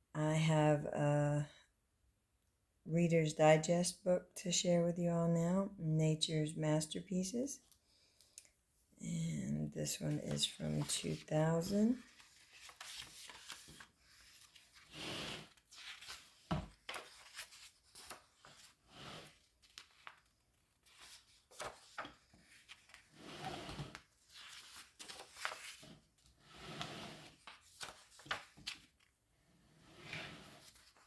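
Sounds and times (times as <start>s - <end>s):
book pages turning: 10.1s - 26.3s, 27.2s - 29.1s, 30.6s - 31.0s.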